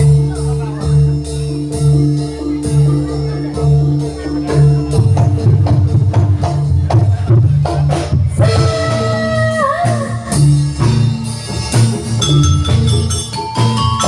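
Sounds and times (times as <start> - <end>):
bass: 0.0 - 14.0
sliding melody line: 12.2 - 14.0.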